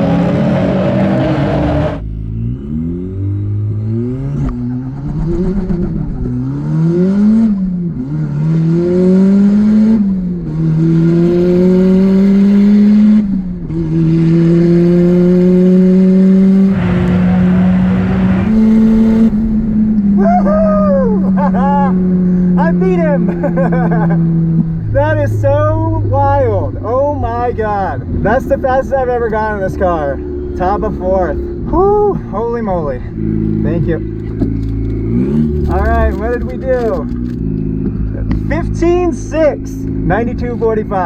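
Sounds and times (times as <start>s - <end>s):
car engine at full throttle: 0.0s - 41.0s.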